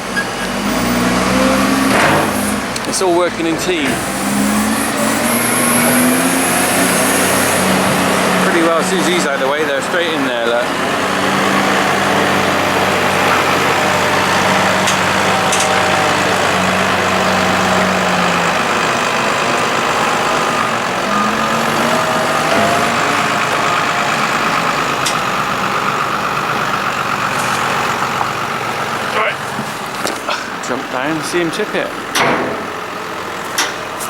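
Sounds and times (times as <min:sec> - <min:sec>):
tractor diesel engines running: 0:00.0 - 0:34.0.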